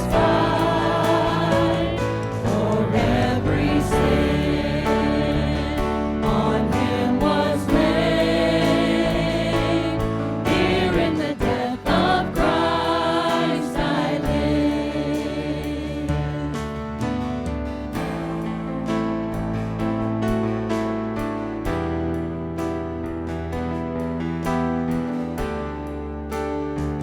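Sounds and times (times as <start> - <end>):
group singing worship song: 0.0 - 17.0
instrumental accompaniment: 0.0 - 27.0.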